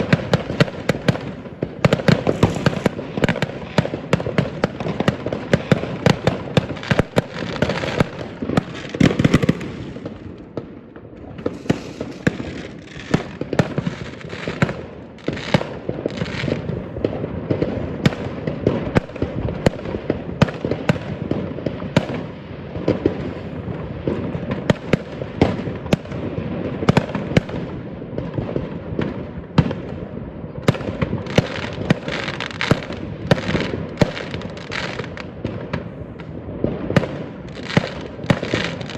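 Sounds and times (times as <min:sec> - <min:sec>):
fireworks bangs and cracks: 0:00.0 - 0:38.9
background rumble: 0:02.0 - 0:03.3.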